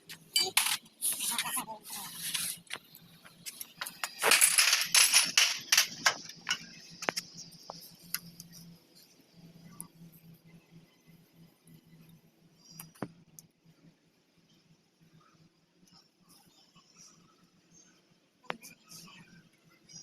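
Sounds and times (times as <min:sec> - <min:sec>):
metal tools clinking: 0:00.2 - 0:01.4, 0:03.4 - 0:06.8
scraping rustle: 0:00.4 - 0:08.6.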